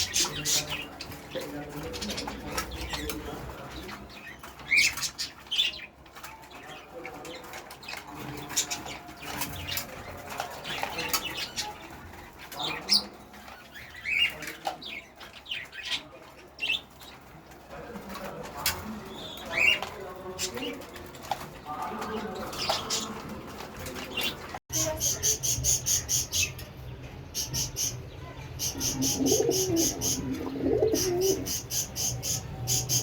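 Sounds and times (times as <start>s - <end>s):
pigeons cooing: 28.6s - 33.0s.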